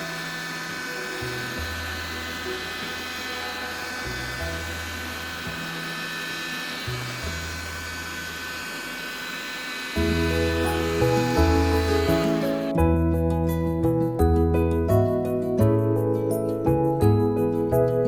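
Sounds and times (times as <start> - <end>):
background music with slow bass: 0.0 - 7.8, 10.0 - 18.0.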